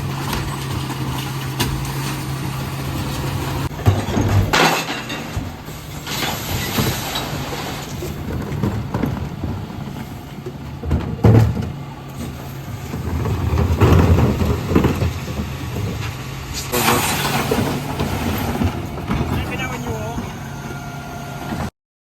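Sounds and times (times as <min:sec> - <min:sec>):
diesel truck engine running: 0:00.0 - 0:21.7
clattering: 0:03.0 - 0:19.7.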